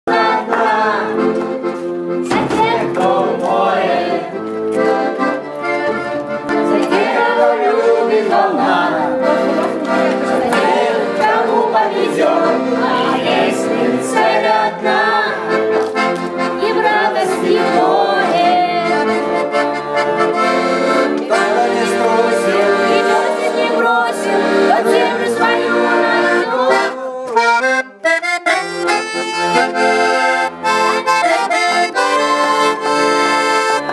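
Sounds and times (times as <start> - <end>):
accordion playing: 0.0 - 33.9
voices singing along: 0.1 - 1.4, 2.2 - 5.3, 6.5 - 15.8, 16.4 - 27.8.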